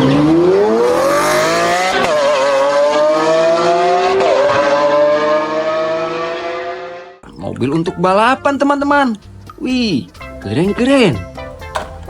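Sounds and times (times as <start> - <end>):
car engine accelerating hard: 0.0 - 7.2.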